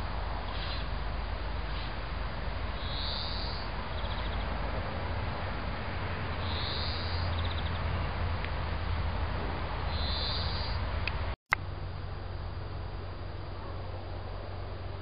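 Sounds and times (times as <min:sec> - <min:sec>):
songbird singing trills: 0:00.4 - 0:01.0, 0:02.7 - 0:04.6, 0:06.3 - 0:07.9, 0:09.9 - 0:10.9.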